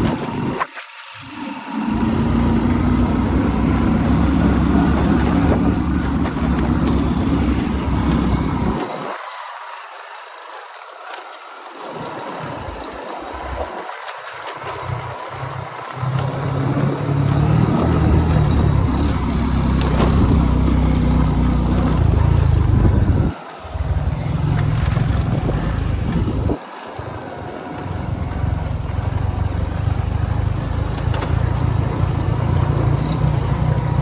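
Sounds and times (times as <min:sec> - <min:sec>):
motorbike engine running: 0:00.0 - 0:08.9, 0:14.6 - 0:26.6, 0:27.6 - 0:34.0.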